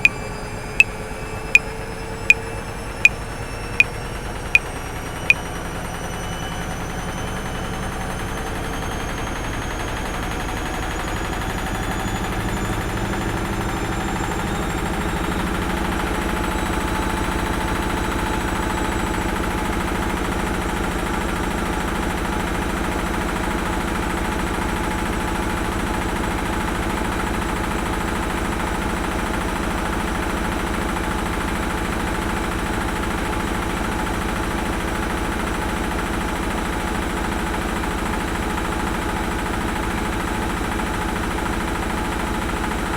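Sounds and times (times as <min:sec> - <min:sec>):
washing machine running: 0:19.1 - 0:42.9.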